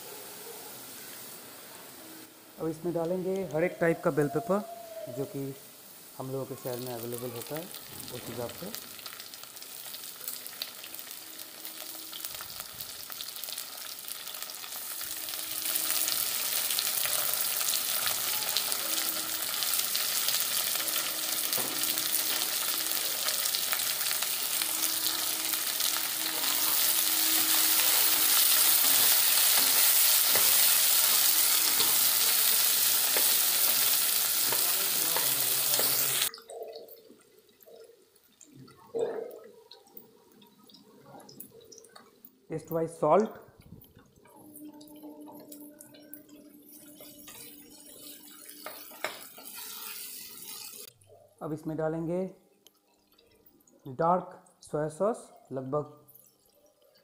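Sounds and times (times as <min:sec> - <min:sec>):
vegetables sizzling in a wok: 0:00.0 - 0:36.3, 0:44.6 - 0:50.9.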